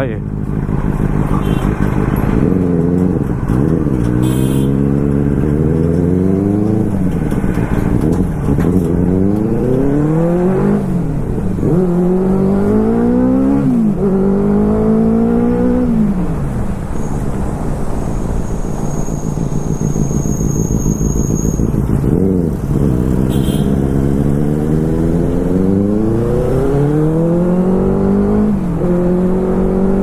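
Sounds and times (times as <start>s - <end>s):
motorcycle engine accelerating: 0.2s - 16.6s, 18.3s - 30.0s.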